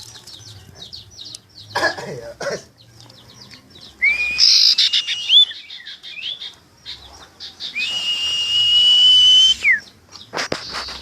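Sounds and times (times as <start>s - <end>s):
owl chirping and calling: 2.8s - 11.0s.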